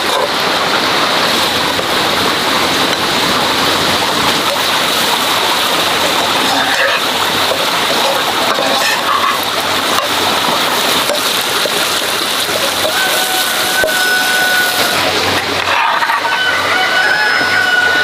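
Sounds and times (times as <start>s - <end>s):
metal ladle scraping pan: 6.0s - 10.2s, 11.0s - 11.9s, 15.6s - 16.6s
food sizzling in a hot pan: 6.5s - 15.0s.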